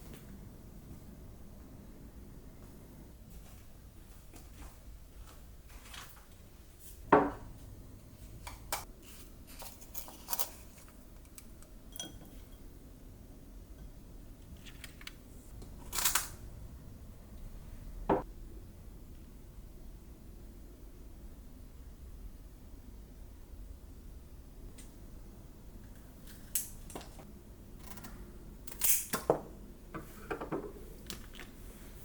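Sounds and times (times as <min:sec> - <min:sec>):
clink with ringing tone: 0:11.9 - 0:12.6.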